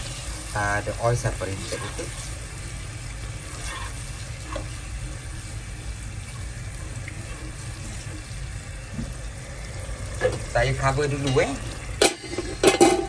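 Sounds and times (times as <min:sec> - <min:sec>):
spatula stirring in pot: 0:00.0 - 0:09.1
chili paste sizzling in oil: 0:00.0 - 0:13.0.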